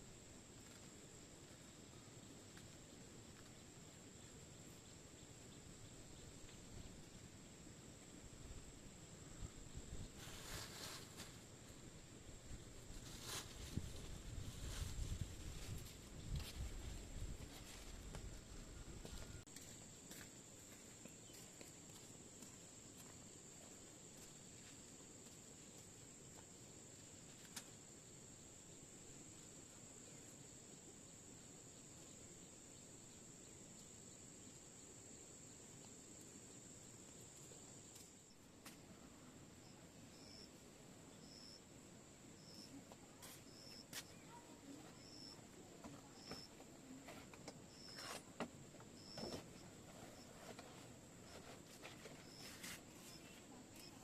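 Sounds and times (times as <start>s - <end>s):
insects trilling: 17.6s - 54.0s.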